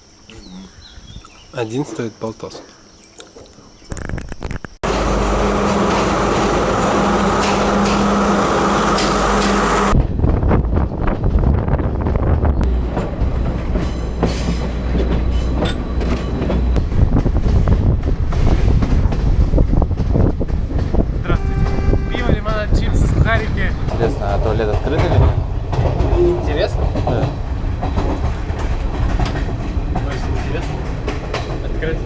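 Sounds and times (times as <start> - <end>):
train rumble with low hum: 4.0 - 32.0
train wheels rattling: 4.9 - 32.0.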